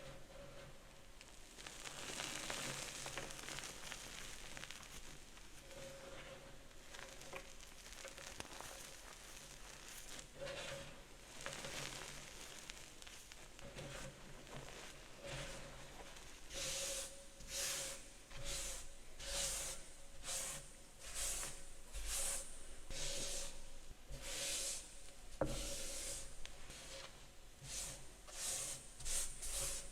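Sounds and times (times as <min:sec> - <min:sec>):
chalk crumbling and crunching: 0:01.3 - 0:16.6.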